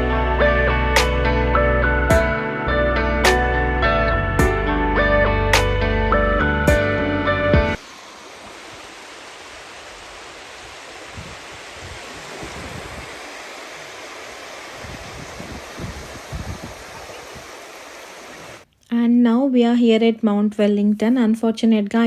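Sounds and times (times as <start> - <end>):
wind buffeting the microphone: 8.6 - 18.6.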